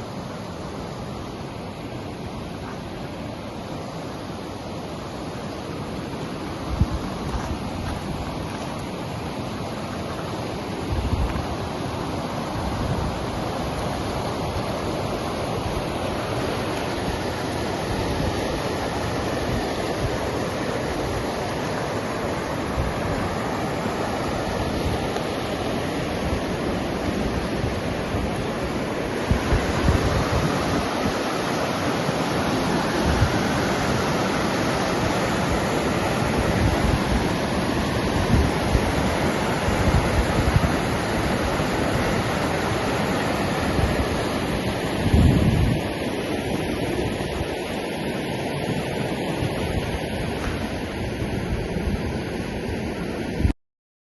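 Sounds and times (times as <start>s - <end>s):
rushing water: 0.0s - 53.5s
wind buffeting microphone: 6.6s - 8.9s, 10.6s - 47.7s.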